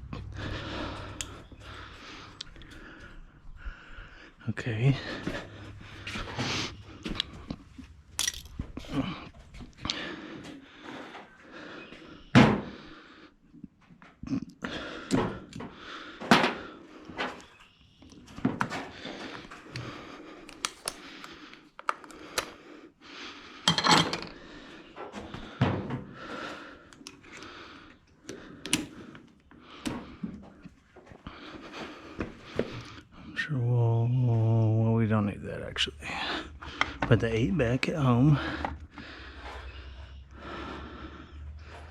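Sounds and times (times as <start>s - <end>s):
metallic clanks of hand tools: 8.2s - 8.6s.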